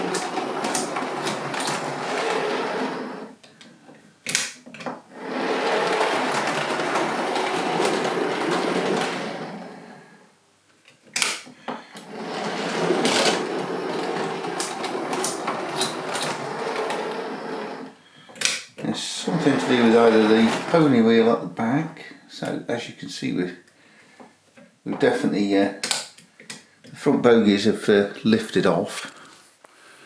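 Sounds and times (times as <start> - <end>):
model train running on track: 0.0 - 3.1, 12.2 - 17.8, 19.3 - 20.9.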